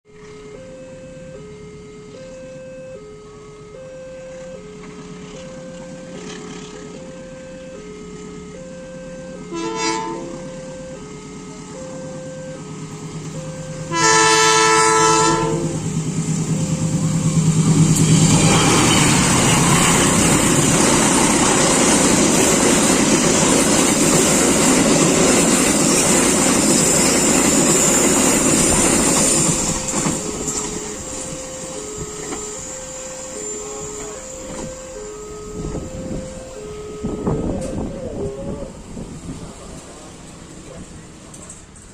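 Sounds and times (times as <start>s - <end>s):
level-crossing alarm ringing: 0.1s - 40.4s
locomotive engine: 0.1s - 41.9s
train horn chord: 3.2s - 21.5s, 29.2s - 39.1s
wheel and rail noise: 3.2s - 41.9s.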